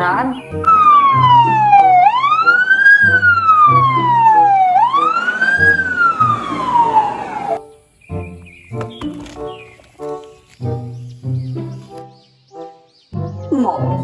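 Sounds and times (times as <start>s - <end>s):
background music: 0.0s - 14.0s
fire engine siren wailing: 0.6s - 7.6s.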